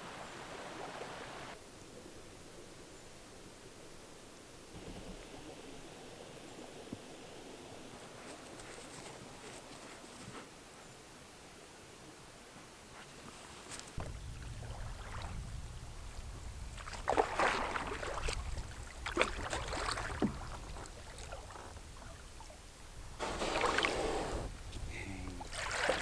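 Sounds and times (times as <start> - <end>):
paddle splashing in water: 16.7 - 22.6, 23.2 - 26.0.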